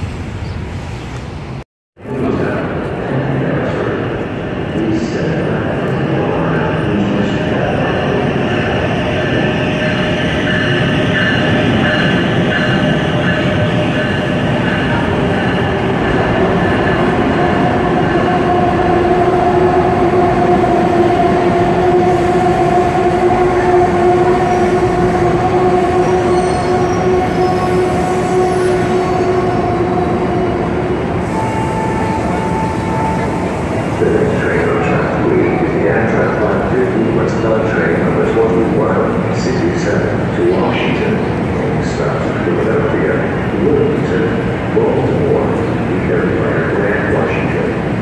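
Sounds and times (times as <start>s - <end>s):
train rumbling: 0.0s - 48.0s
two-note train squeal: 23.3s - 30.6s, 31.2s - 34.2s.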